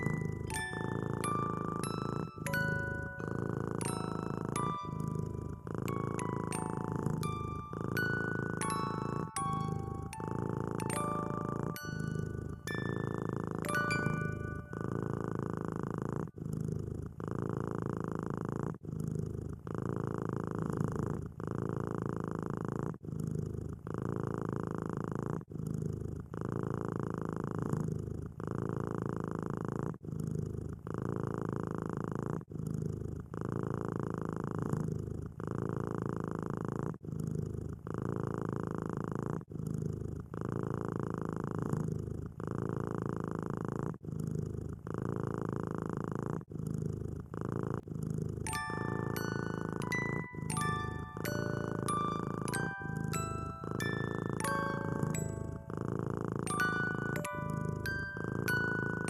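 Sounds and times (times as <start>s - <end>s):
chiming music: 0.0s - 15.1s, 48.5s - 59.0s
cat purring: 0.0s - 59.0s.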